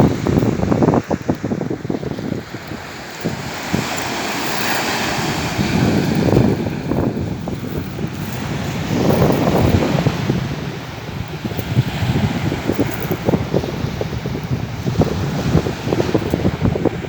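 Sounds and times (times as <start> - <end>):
sea waves breaking: 0.0 - 17.0
wind buffeting microphone: 0.0 - 17.0.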